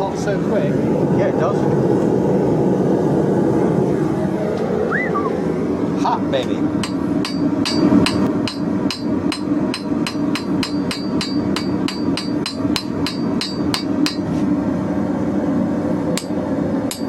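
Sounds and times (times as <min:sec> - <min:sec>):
steady low roar: 0:00.1 - 0:09.7
hammer striking hot steel: 0:06.8 - 0:14.3, 0:16.1 - 0:17.0.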